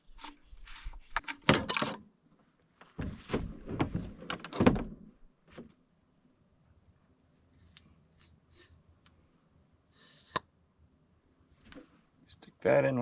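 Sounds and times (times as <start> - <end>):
clicks and scrapes of handled parts: 0.0 - 2.0.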